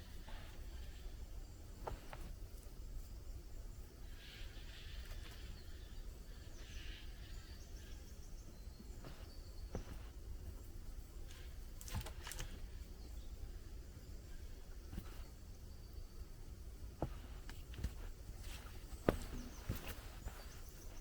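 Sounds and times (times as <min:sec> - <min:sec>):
faint chirps: 0:00.0 - 0:21.0
short knocks and rustles: 0:17.0 - 0:21.0.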